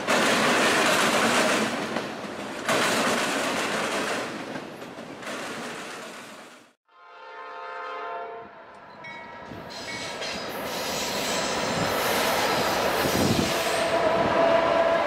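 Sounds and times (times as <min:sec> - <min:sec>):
train rumble and wheel noise: 0:00.0 - 0:06.8, 0:08.4 - 0:15.0
locomotive horn chord: 0:06.8 - 0:08.8, 0:13.8 - 0:15.0.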